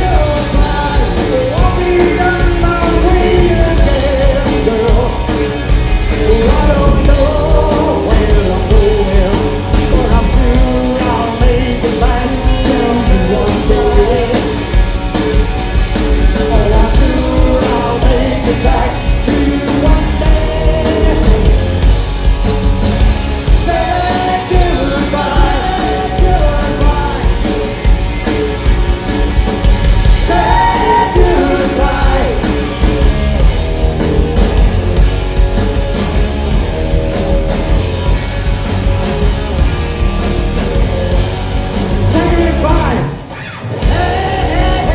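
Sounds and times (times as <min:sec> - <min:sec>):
person singing: 0:00.0 - 0:21.8, 0:23.5 - 0:27.8, 0:30.2 - 0:33.1, 0:43.8 - 0:44.9
live rock band playing: 0:00.0 - 0:44.9.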